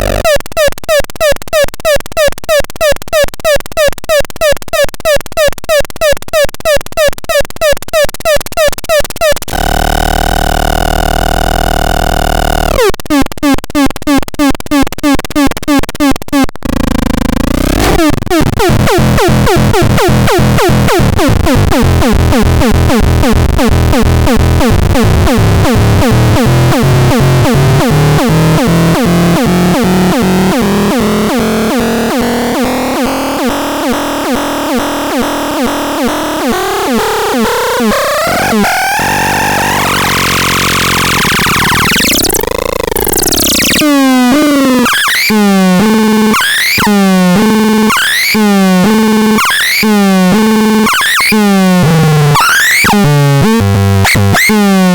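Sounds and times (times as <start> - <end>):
synthesizer test tones: 9.3 - 54.9.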